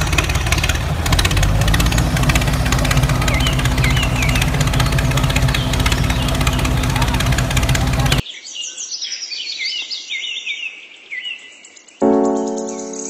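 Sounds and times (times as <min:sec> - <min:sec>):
tractor engine running: 0:00.0 - 0:08.2
birds chirping: 0:00.0 - 0:13.0.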